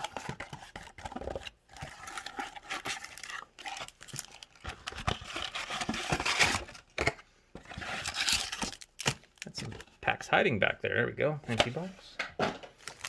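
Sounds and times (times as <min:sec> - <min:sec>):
packaging tearing and crinkling: 0:01.9 - 0:06.8, 0:07.8 - 0:09.6.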